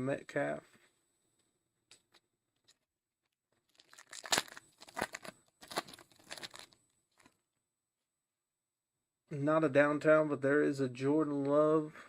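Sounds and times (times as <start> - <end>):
foil wrapper tearing and crinkling: 3.7 - 7.4.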